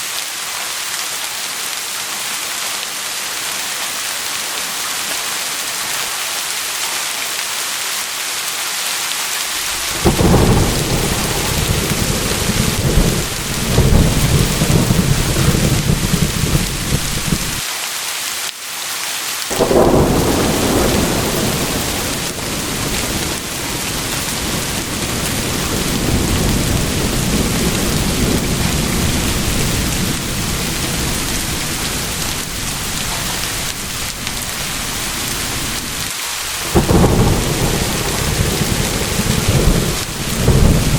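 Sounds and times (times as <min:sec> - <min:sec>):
heavy rain: 0:00.0 - 0:40.9
rolling thunder: 0:09.6 - 0:17.6, 0:19.5 - 0:40.9.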